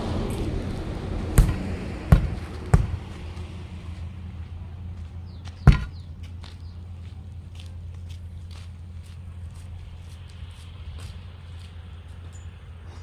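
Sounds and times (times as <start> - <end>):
steady low hum: 0.0 - 13.0
sharp knocks: 1.4 - 3.1, 5.6 - 6.1.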